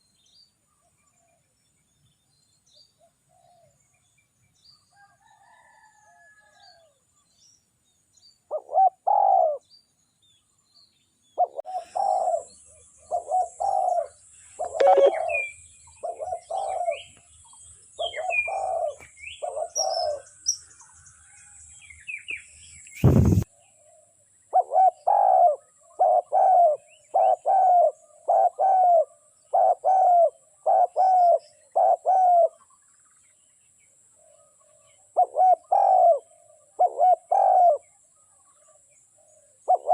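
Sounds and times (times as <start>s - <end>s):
small songbirds chirping: 0.0s - 39.9s
dove cooing: 8.5s - 9.6s, 11.4s - 17.1s, 18.0s - 20.3s, 24.5s - 32.6s, 35.2s - 38.0s, 39.3s - 39.9s
sharp knock: 23.0s - 23.4s.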